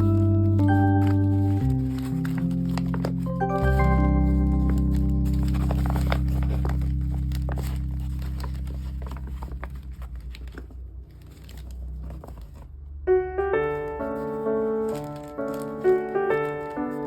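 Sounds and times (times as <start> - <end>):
background music chord: 0.0 - 9.4
packaging crinkling: 0.0 - 12.8, 13.6 - 17.0.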